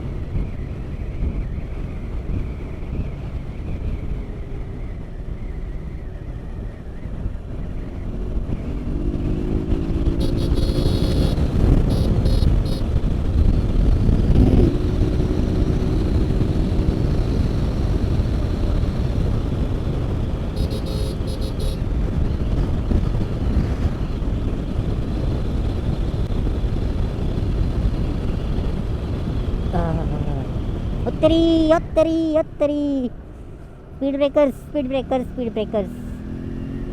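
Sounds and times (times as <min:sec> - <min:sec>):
wind on microphone: 0:00.0 - 0:32.4
motorcycle engine rumble: 0:00.1 - 0:36.9.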